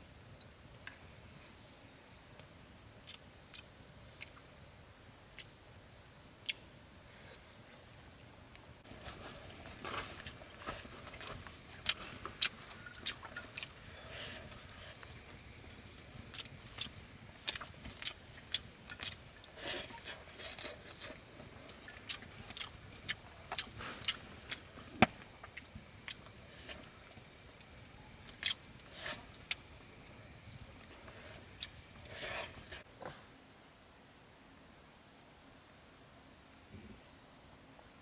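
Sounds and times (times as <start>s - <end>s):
person chewing and crunching: 10.0s - 13.8s, 16.3s - 24.7s, 28.3s - 29.6s.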